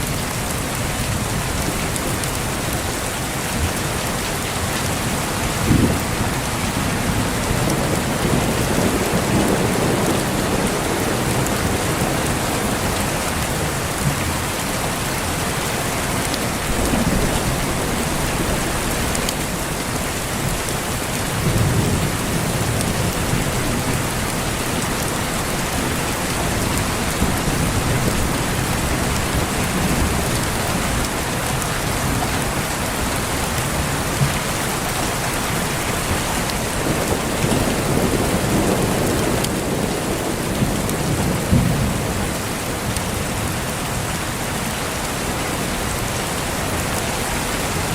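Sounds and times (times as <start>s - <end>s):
heavy rain falling: 0.0s - 47.9s
thunder rumbling: 5.5s - 13.0s, 16.6s - 20.6s, 36.0s - 42.9s.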